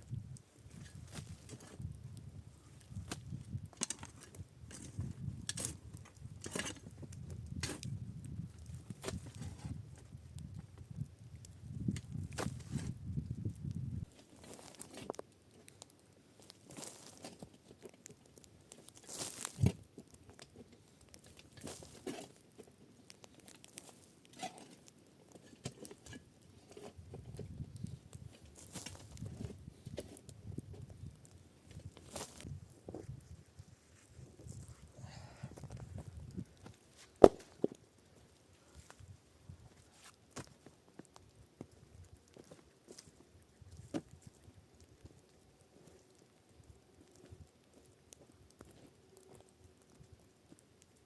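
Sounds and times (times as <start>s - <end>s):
low rumble of wind: 0.0s - 14.7s, 26.1s - 40.0s
crunching in snow: 16.4s - 17.5s, 18.9s - 19.8s, 31.9s - 35.0s.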